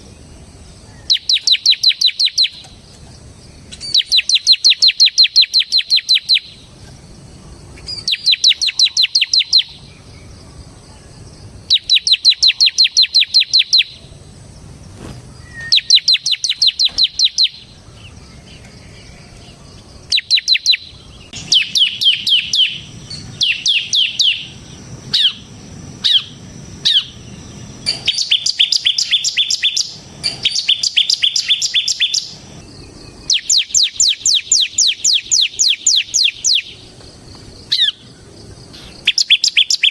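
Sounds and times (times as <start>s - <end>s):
bird singing rapid high notes: 1.0s - 2.7s, 3.8s - 6.6s, 7.9s - 10.0s, 15.4s - 17.8s, 20.1s - 32.5s, 33.2s - 36.8s, 39.0s - 39.9s.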